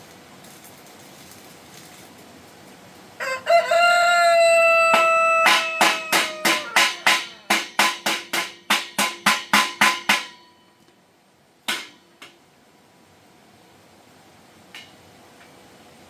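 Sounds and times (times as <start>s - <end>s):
rooster crowing: 3.2s - 7.5s
hammer striking metal: 4.9s - 10.7s, 11.7s - 12.4s.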